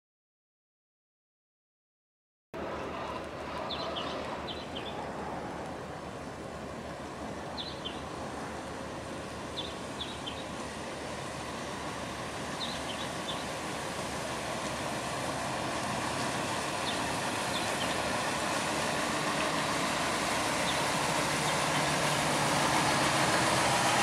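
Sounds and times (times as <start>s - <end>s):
steady outdoor rushing noise: 2.6s - 24.0s.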